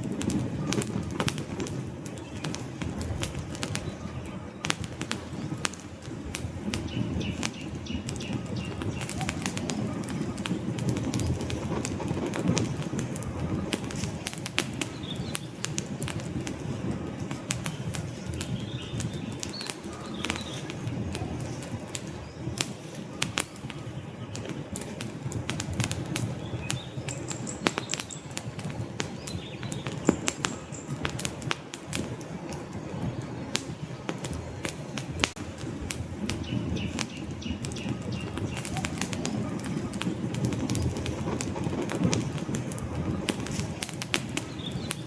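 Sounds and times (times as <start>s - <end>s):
crackles and pops of burning logs: 0.0s - 45.0s
low rush of flame: 0.0s - 45.0s.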